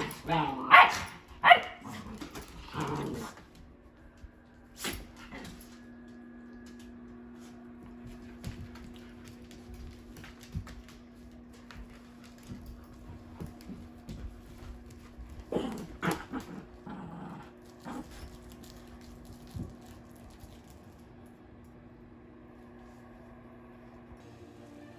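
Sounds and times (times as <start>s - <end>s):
dog growling and barking: 0.0s - 3.5s, 15.4s - 18.5s
steady low hum: 0.0s - 24.9s.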